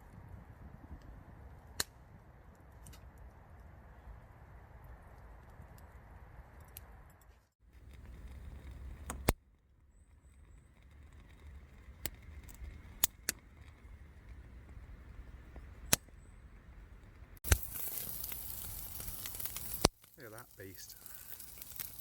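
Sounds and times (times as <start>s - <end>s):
wood fire popping: 7.6s - 22.0s
steak sizzling: 10.6s - 22.0s.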